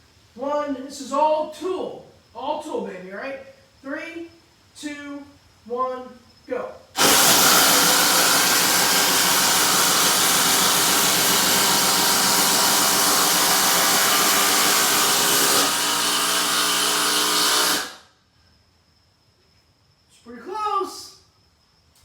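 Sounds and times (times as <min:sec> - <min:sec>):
impact drivers hammering fasteners: 0:07.0 - 0:18.0.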